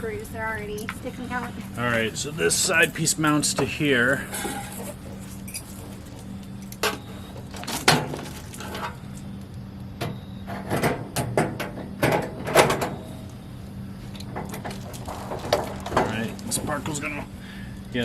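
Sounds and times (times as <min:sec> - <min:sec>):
metal grill parts clunking: 0:01.9 - 0:09.0, 0:14.1 - 0:17.3.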